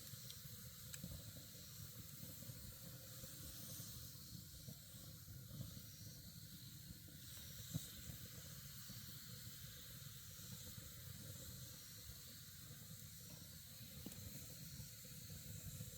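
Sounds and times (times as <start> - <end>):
campfire crackling pops: 0.0 - 4.8, 10.6 - 15.9
campfire hissing: 0.0 - 15.9.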